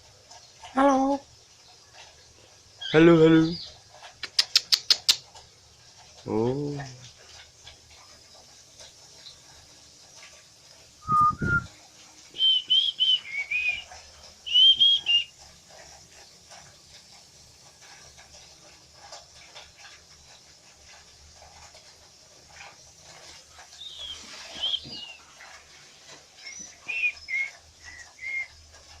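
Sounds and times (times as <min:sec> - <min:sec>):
cockatiel whistling: 0:11.0 - 0:11.7, 0:12.4 - 0:15.3, 0:23.8 - 0:25.2, 0:26.4 - 0:28.5
faint rustling and clicking: 0:15.2 - 0:29.0.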